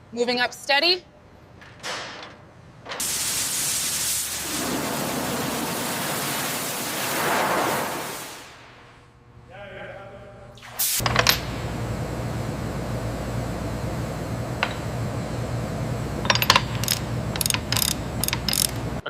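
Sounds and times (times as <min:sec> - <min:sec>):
steady low hum: 0:08.6 - 0:19.0.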